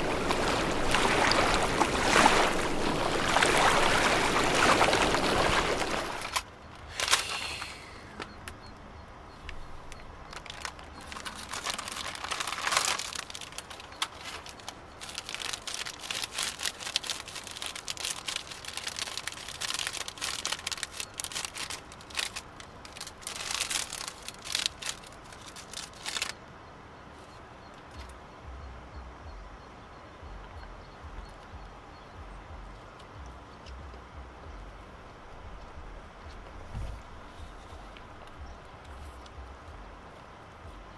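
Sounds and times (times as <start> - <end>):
crinkling and rustling handling: 9.4 - 26.4.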